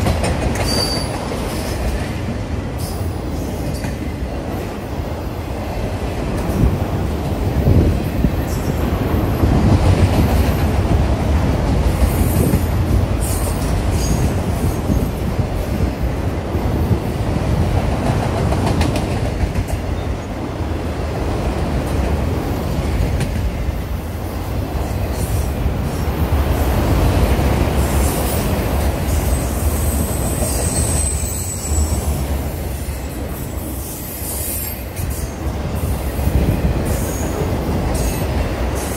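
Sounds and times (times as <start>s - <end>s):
train wheels rumbling on rails: 0.0s - 38.9s
wheel squeal: 0.6s - 1.2s, 29.3s - 32.0s.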